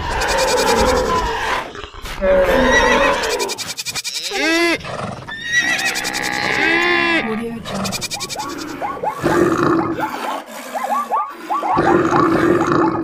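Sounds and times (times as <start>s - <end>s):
horse whinnying: 0.0s - 7.2s
animal calls: 0.0s - 13.0s.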